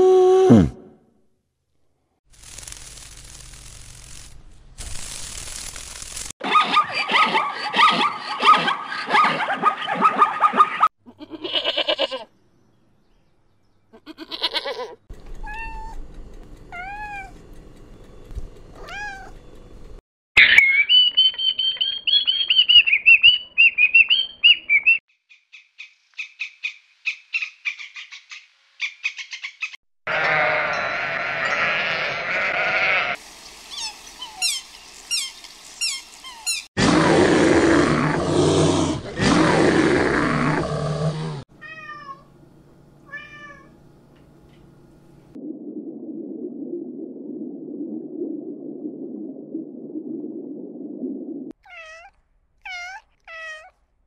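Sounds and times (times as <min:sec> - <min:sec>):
harsh animal calls: 0:30.1 - 0:41.4.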